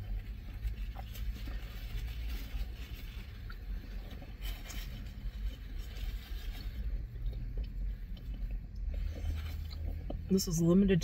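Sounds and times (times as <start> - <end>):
people chewing: 0.0 - 10.3
car cabin hum: 0.0 - 11.0
paper wrapper rustling: 0.1 - 7.0.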